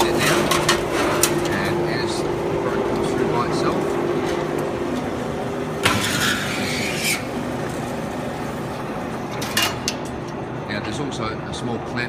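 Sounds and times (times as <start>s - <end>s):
machine mechanical hum: 0.0s - 12.0s
harsh metallic noise: 5.6s - 8.0s.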